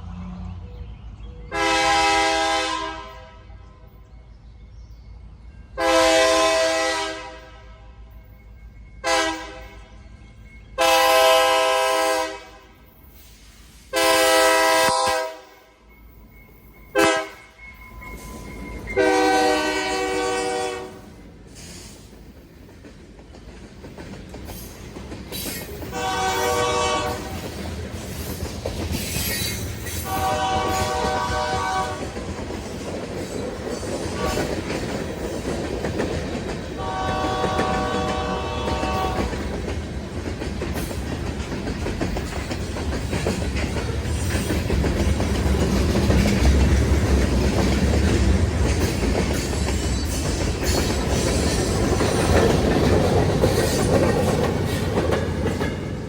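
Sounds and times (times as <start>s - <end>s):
train rumbling and clattering: 0.0s - 56.0s
diesel locomotive horn blasts: 1.5s - 4.0s, 5.8s - 8.3s, 9.0s - 10.0s, 10.8s - 12.9s, 13.9s - 15.8s, 16.9s - 18.1s, 18.8s - 21.2s, 25.9s - 27.5s, 30.0s - 32.3s, 34.1s - 34.7s, 36.8s - 39.5s.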